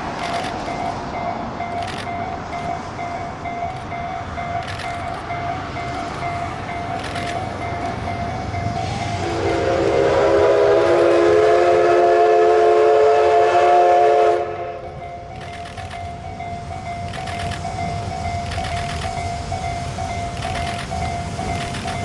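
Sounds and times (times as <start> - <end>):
train running noise: 0.0 - 22.0
steam locomotive whistle blast: 8.8 - 14.9.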